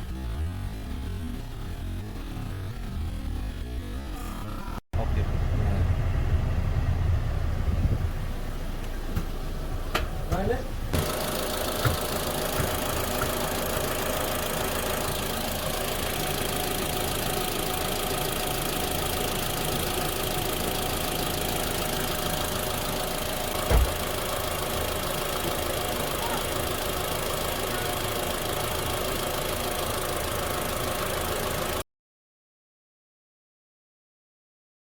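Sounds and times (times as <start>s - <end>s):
car engine idling: 0.0s - 31.8s
loud thump: 11.7s - 13.4s, 23.6s - 24.1s.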